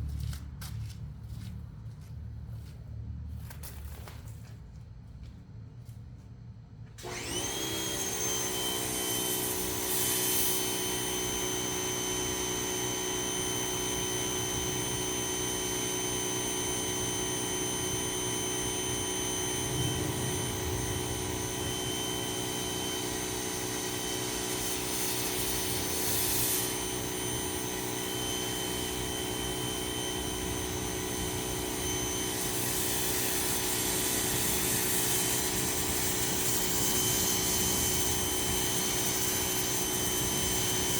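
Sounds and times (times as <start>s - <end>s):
power washer motor running: 7.0s - 40.9s
power washer spray hiss: 8.7s - 11.8s, 19.5s - 40.9s.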